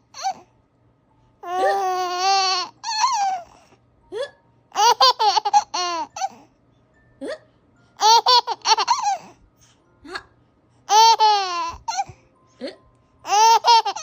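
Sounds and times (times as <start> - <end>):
baby giggling: 1.4 - 3.5, 4.8 - 6.4, 8.0 - 9.3, 10.9 - 14.0
baby squeaking: 1.5 - 3.6, 13.3 - 14.0.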